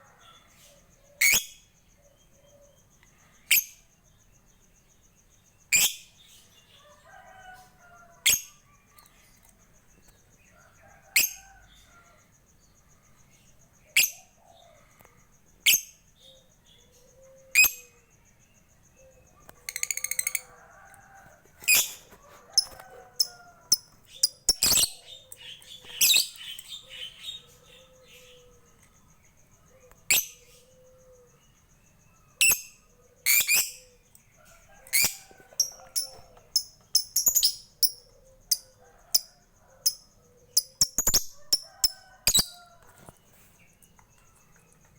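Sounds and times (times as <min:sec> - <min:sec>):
lovebird chirping: 0:21.6 - 0:28.8, 0:32.4 - 0:34.0, 0:34.9 - 0:39.3, 0:39.9 - 0:42.6.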